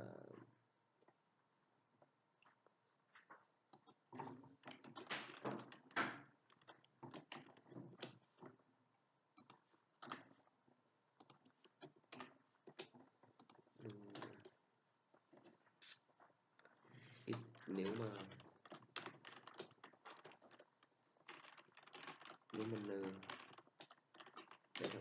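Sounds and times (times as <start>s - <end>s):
typing on computer keyboard: 17.3s - 25.0s.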